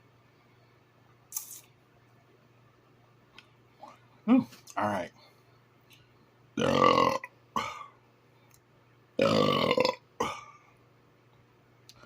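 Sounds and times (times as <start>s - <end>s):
man burping loudly: 6.6s - 7.9s, 9.2s - 10.6s.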